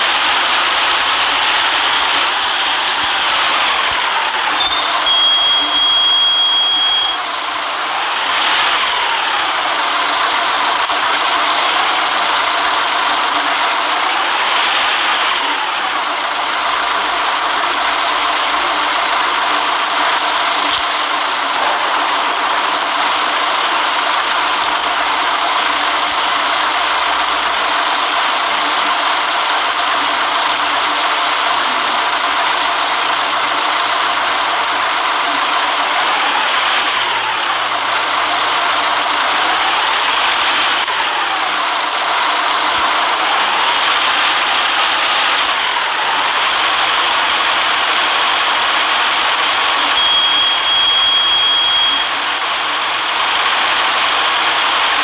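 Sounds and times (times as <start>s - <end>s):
bus engine noise: 0.0s - 55.0s
tyres hissing on wet road: 14.0s - 20.6s, 34.6s - 42.6s.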